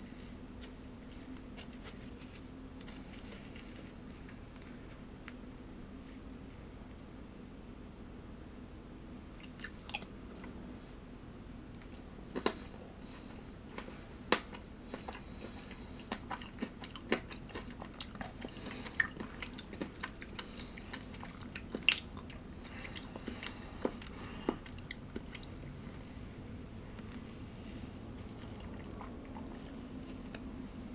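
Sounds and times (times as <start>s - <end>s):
faint steady hum: 0.0s - 30.9s
person chewing crunchy food: 11.8s - 30.9s.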